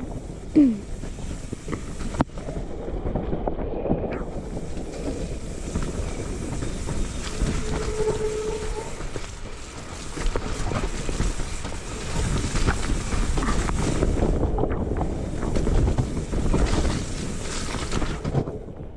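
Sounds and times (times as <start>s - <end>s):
bike tyres rumbling over ground: 0.0s - 18.9s
wind rushing over microphone: 0.0s - 18.9s
short steady squeal: 5.8s - 10.0s.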